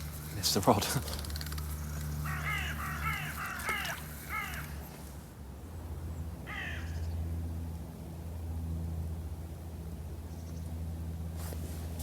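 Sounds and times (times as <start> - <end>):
crow cawing: 2.2 - 4.8, 6.5 - 7.1.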